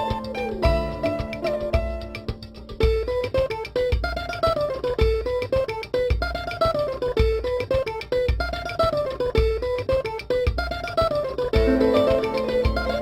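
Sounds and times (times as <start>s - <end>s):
low beat: 0.0s - 13.0s
plucked strings melody: 0.0s - 13.0s.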